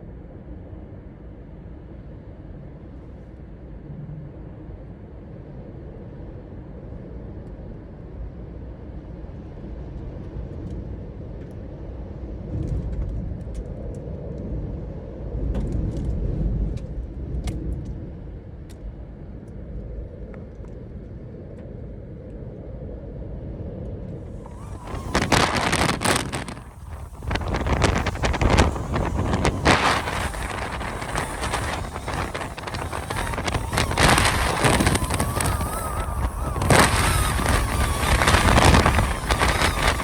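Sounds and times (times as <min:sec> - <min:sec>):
wind gusts rumbling on microphone: 0:24.2 - 0:40.0
faint ticks and rattles: 0:24.3 - 0:40.0.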